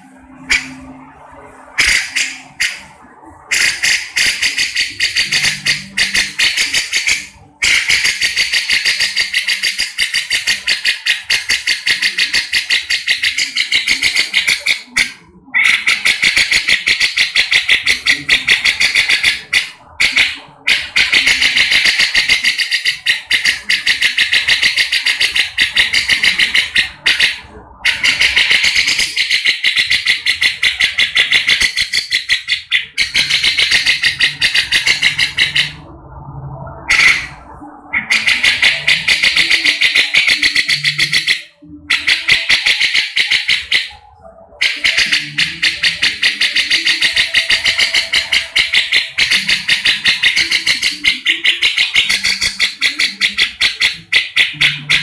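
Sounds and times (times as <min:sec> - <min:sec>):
bird chattering call: 0:00.4 - 0:01.0, 0:01.7 - 0:02.9, 0:03.5 - 0:35.8, 0:36.8 - 0:55.0.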